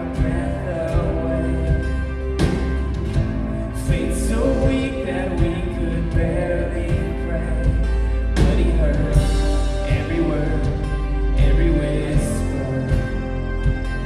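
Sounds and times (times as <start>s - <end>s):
live band playing: 0.0s - 14.0s
people singing: 0.0s - 14.0s.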